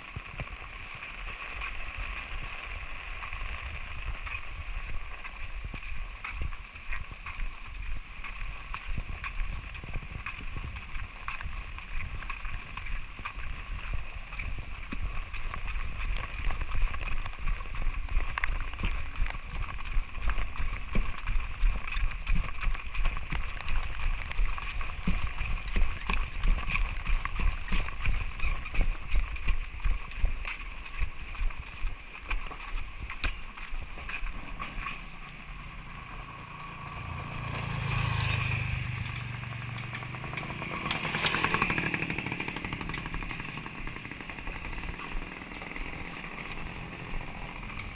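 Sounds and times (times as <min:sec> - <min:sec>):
footsteps on a hard surface: 0:00.0 - 0:35.9.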